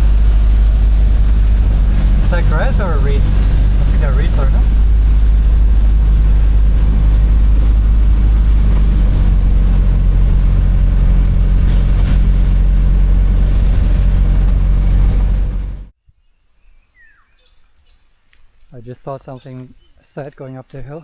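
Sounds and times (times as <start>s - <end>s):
van engine and road drone: 0.0s - 16.0s.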